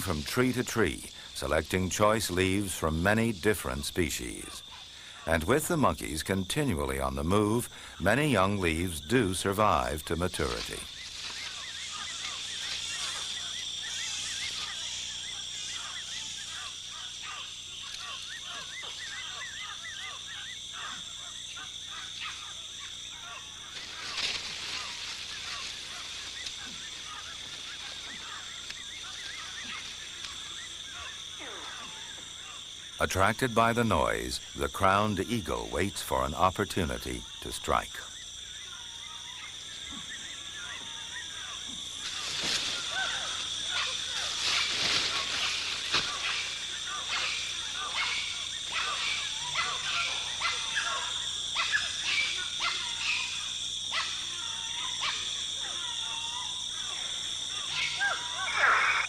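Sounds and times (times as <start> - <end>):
high insect drone: 0.0 - 59.0
lower falling calls: 0.0 - 59.0
animal calls in arching notes: 42.8 - 59.0
wavering chirping calls: 57.6 - 59.0.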